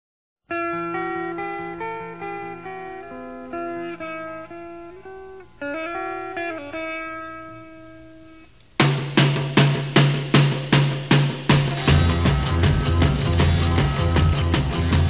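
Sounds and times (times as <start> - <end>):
plucked guitar melody: 0.5 - 8.6, 11.5 - 15.0
loud drum hit: 8.8 - 15.0.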